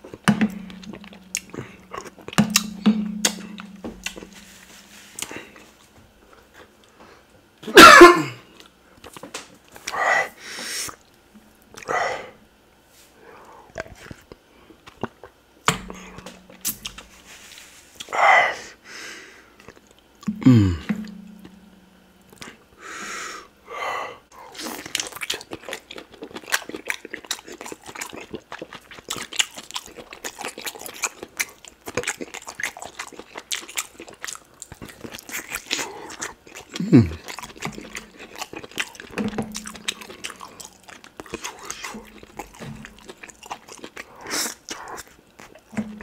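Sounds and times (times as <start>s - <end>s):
wet chewing and lip smacks: 0.0s - 2.8s, 13.7s - 17.1s, 19.6s - 20.3s, 24.5s - 45.8s
steady low hum: 0.0s - 7.4s, 11.0s - 24.6s, 36.7s - 46.0s.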